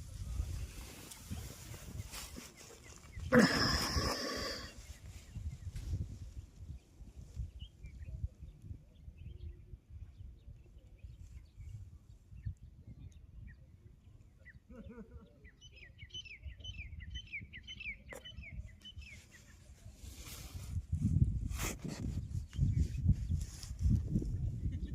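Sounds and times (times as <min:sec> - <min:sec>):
songbird chirping: 0:00.4 - 0:20.3.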